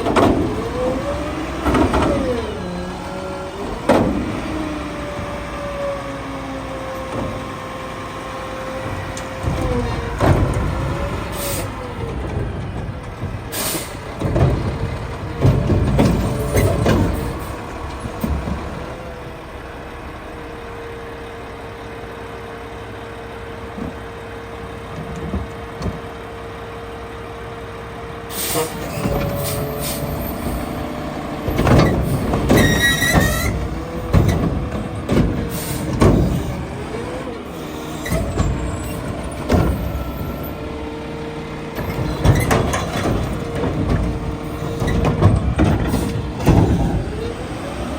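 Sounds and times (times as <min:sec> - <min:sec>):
truck engine and hydraulic whine: 0:00.0 - 0:47.9
high squeal: 0:32.0 - 0:33.6
metal clanks and bangs: 0:41.7 - 0:47.9.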